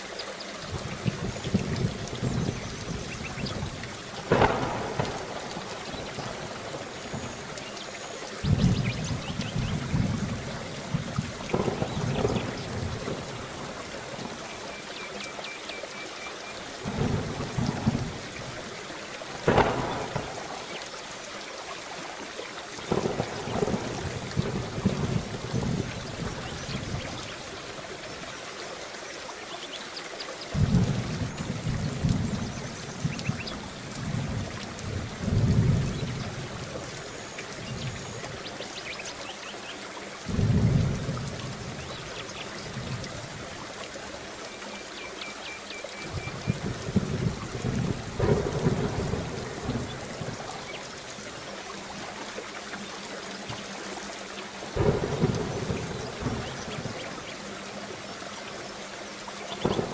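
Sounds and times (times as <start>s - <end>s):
steady rain falling: 0.0s - 59.9s
thunder rumbling: 0.7s - 7.6s, 8.4s - 14.4s, 16.8s - 20.8s, 22.9s - 27.7s, 30.5s - 38.5s, 40.3s - 43.4s, 46.1s - 51.0s, 54.8s - 57.3s, 59.6s - 59.9s.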